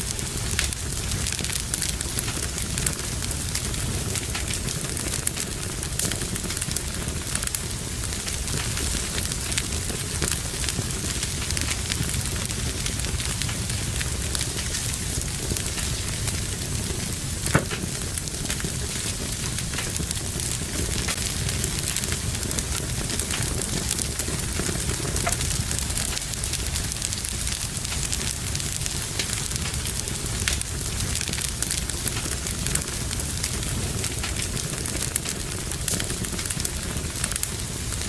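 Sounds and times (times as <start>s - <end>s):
fire popping loudly: 0.0s - 38.0s
wood fire crackling: 0.0s - 38.0s.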